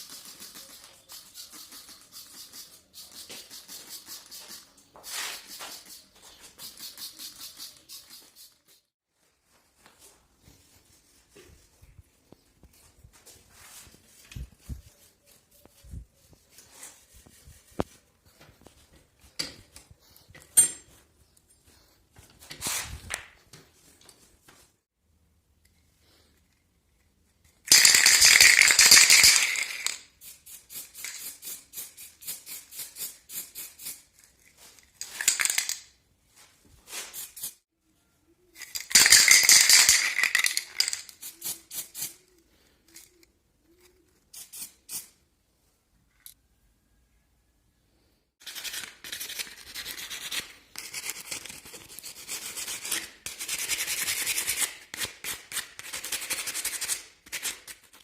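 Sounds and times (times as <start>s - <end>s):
clicks and rattles of hand work: 34.1s - 35.9s.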